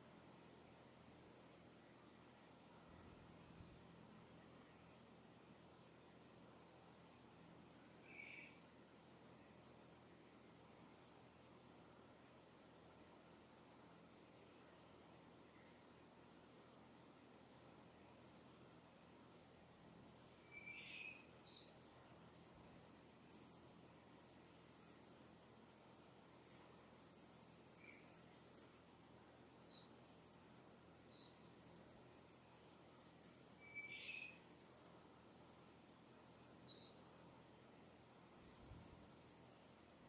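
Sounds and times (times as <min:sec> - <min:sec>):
faint outdoor hiss: 0:00.0 - 0:40.0
small birds chirping and trilling: 0:19.2 - 0:37.7, 0:38.3 - 0:40.0.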